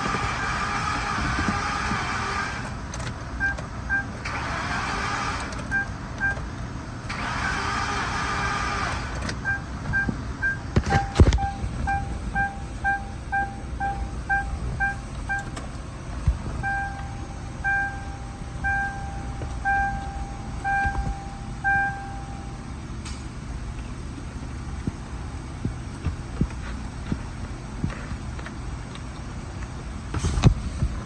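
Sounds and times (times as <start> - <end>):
car warning chime beeping: 5.7 - 6.4, 9.4 - 15.6, 16.6 - 22.7.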